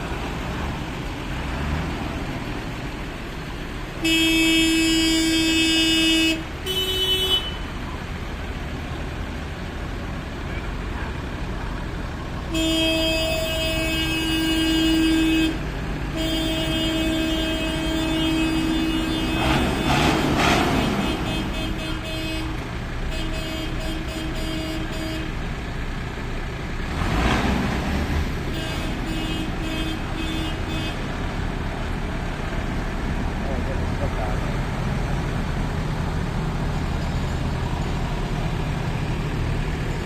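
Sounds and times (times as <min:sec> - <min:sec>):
vehicle engines running: 0:00.0 - 0:40.0
vehicle horn blasts and toots: 0:04.0 - 0:07.8, 0:12.5 - 0:25.4, 0:28.4 - 0:31.1.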